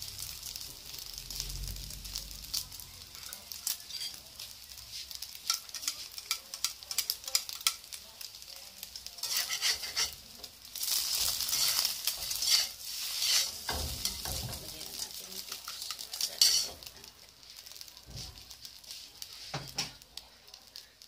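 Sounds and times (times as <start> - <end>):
egg sizzling and popping in oil: 0.0 - 21.0
metal spatula scraping wok: 2.5 - 7.9, 9.1 - 20.0.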